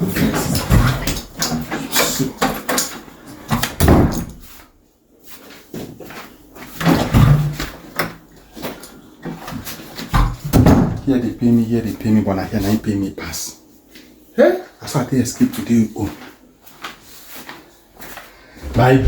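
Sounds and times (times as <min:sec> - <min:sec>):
door knocks and bumps: 0:00.1 - 0:01.7, 0:03.5 - 0:04.4, 0:06.8 - 0:07.7, 0:10.1 - 0:11.2, 0:18.6 - 0:19.0
heavy thumps: 0:18.6 - 0:19.0.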